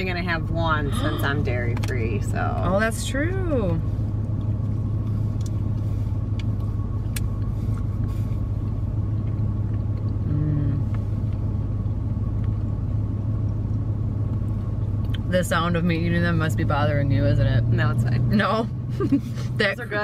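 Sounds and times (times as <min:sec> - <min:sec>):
car engine idling: 0:00.0 - 0:20.0
mouth chewing soft food: 0:04.2 - 0:10.3
person humming mm: 0:10.2 - 0:10.9.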